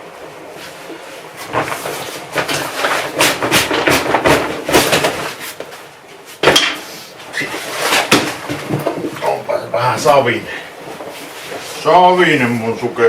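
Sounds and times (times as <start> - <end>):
sharp loud knock: 8.1 - 8.4.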